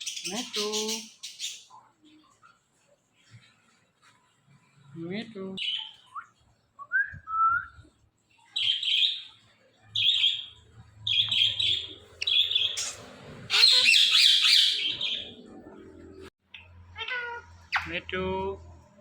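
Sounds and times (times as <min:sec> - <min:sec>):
parakeet chirping: 0:00.0 - 0:01.7, 0:05.6 - 0:06.1, 0:08.5 - 0:09.4, 0:10.0 - 0:18.0
parakeet squawking: 0:10.0 - 0:15.5, 0:16.5 - 0:18.0.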